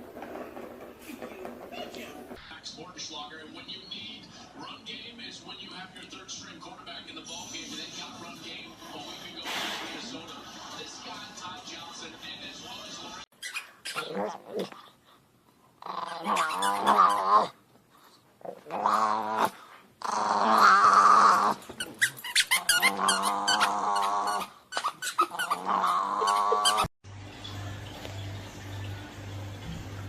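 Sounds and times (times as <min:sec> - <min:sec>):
dog growling and whining: 0:13.5 - 0:14.8, 0:15.8 - 0:17.6, 0:18.4 - 0:26.9.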